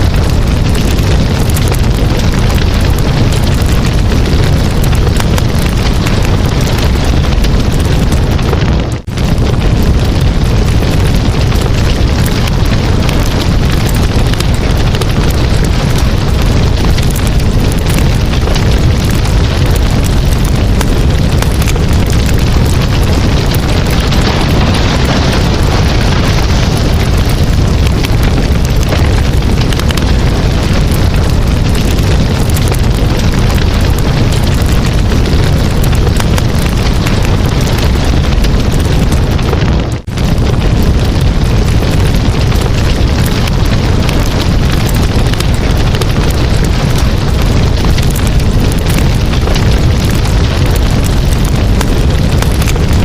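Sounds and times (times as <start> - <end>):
campfire crackling and popping: 0.0 - 53.0.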